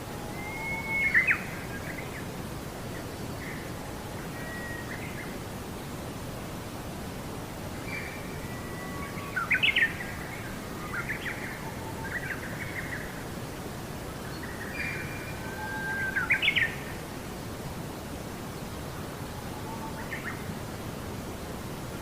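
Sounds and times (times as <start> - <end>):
background hiss: 0.0 - 22.0
songbird singing: 0.1 - 5.4, 7.7 - 17.1, 18.6 - 20.7.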